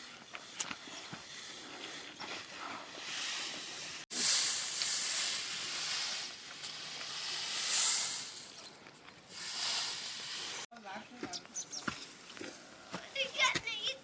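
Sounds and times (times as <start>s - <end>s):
bright high-pitched hiss: 3.0s - 10.7s.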